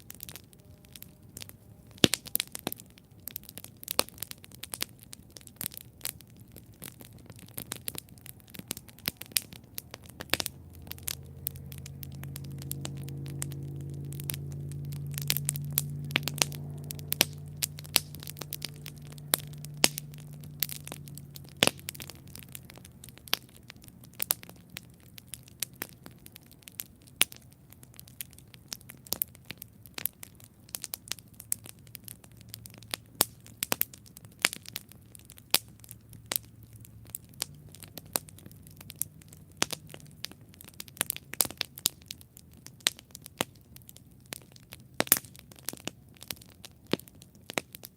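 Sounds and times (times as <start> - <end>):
campfire crackling and popping: 0.0 - 47.9
low hum: 7.0 - 24.0.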